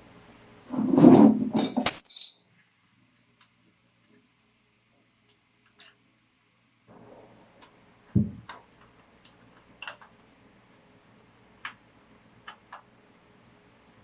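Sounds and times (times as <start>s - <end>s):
heavy low thump: 8.2s - 8.5s
tools clicking and tapping: 8.2s - 10.2s.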